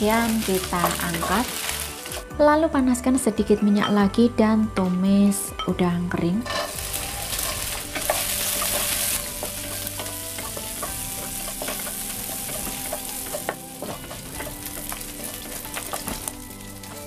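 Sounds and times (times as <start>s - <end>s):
shrimp sizzling in oil: 0.0s - 2.3s, 6.5s - 17.0s.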